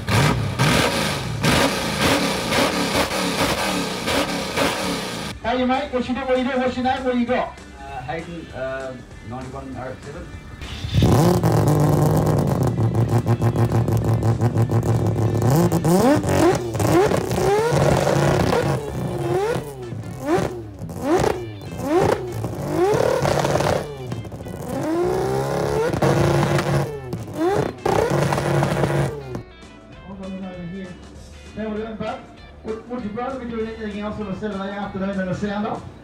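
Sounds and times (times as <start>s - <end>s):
rotary engine idling and revving: 0.0s - 5.4s, 10.4s - 29.5s.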